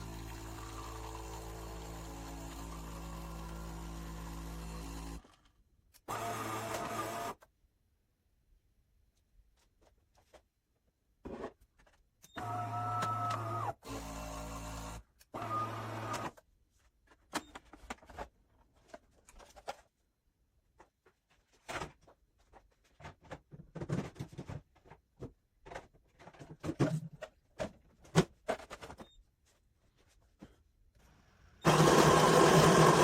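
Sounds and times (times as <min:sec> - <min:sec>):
espresso machine motor running: 0:31.6 - 0:33.0.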